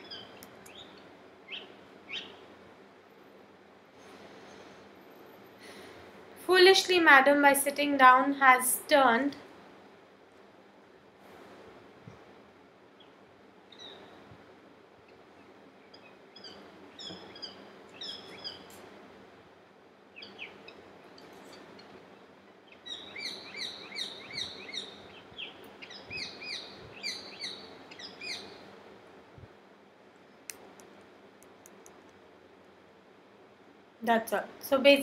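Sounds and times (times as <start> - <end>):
bird chirping: 0.0 - 2.4, 13.0 - 14.2, 15.4 - 18.7, 20.1 - 20.8, 22.5 - 28.6
faint steady hiss: 0.0 - 35.0.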